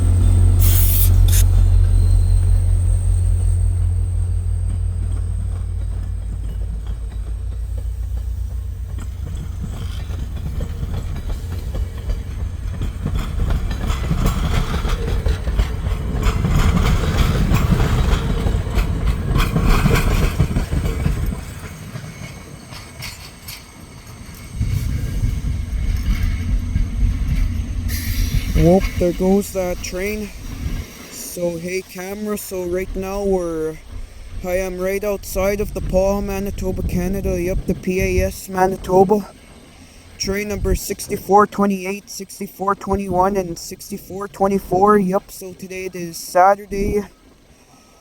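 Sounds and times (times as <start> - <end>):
train wheels clicking on rails: 0.0 - 38.4
diesel locomotive drone: 0.0 - 48.0.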